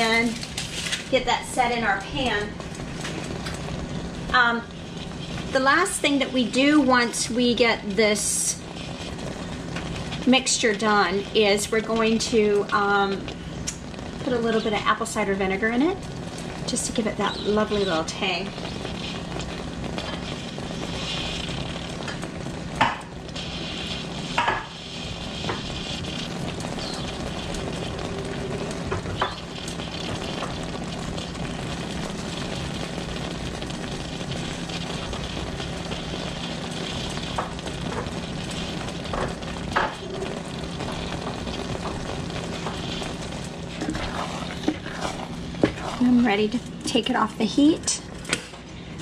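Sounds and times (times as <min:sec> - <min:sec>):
sauce sizzling in a pan: 0:00.0 - 0:49.0.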